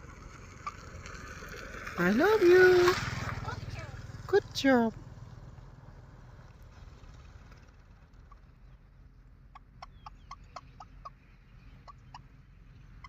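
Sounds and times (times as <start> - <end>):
clucking clicks: 9.5 - 12.3.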